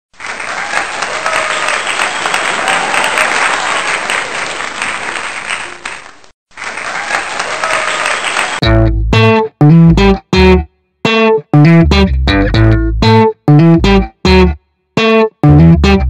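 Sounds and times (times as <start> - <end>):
crowd applause and cheering: 0.1 - 8.6
electric guitar and bass: 8.6 - 16.0.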